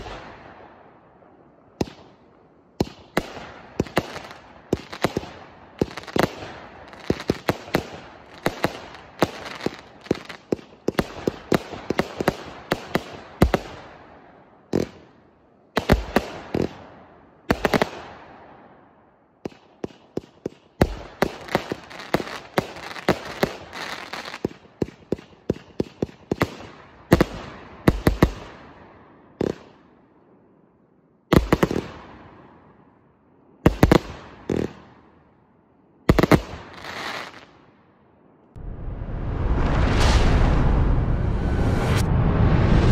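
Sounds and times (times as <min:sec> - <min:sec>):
fireworks bangs and crackle: 0:02.8 - 0:14.1, 0:14.7 - 0:15.1, 0:15.8 - 0:16.9, 0:17.5 - 0:18.3, 0:19.4 - 0:28.8, 0:29.4 - 0:29.8, 0:31.3 - 0:32.3, 0:33.6 - 0:34.9, 0:36.1 - 0:37.6
fireworks booms: 0:38.6 - 0:42.9.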